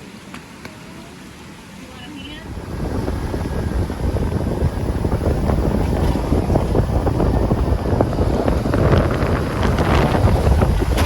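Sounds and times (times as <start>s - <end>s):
vehicle driving on gravel road: 2.6s - 11.0s.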